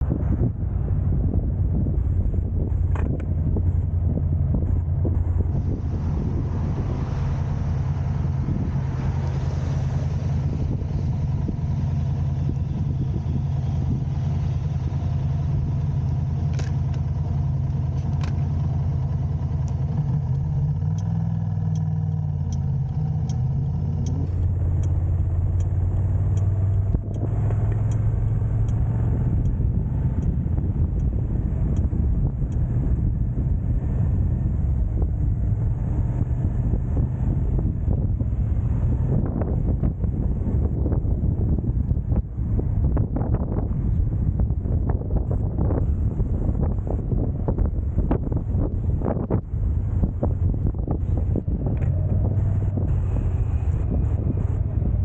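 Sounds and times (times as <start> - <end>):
car engine and road hum: 0.0 - 55.0
faint ticks: 19.6 - 32.7.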